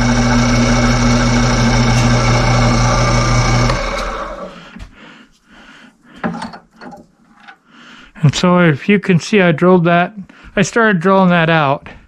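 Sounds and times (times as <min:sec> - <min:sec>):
drill press motor humming: 0:00.0 - 0:04.6
spindle winding down: 0:00.0 - 0:04.6.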